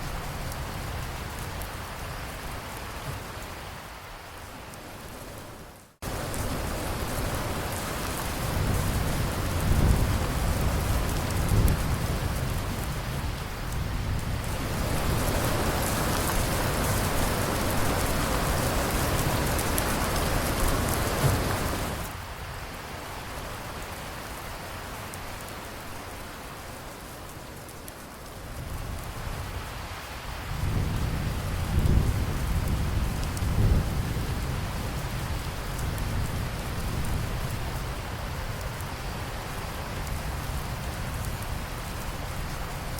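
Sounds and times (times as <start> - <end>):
heavy rain hissing: 0.0 - 42.9
low rolling thunder: 6.0 - 22.2, 30.3 - 38.8.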